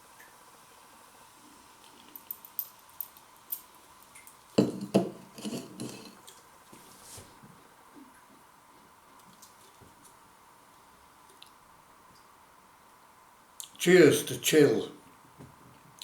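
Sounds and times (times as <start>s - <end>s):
small knocks and rattles: 1.9s - 6.4s.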